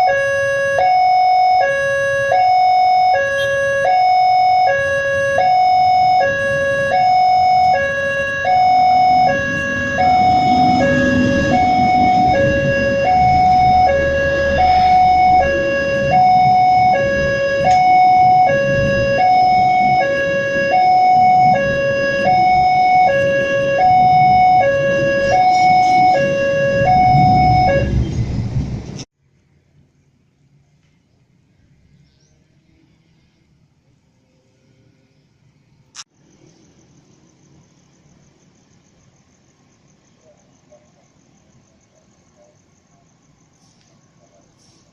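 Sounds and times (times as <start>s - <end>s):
level crossing warning alarm: 0.0s - 28.3s.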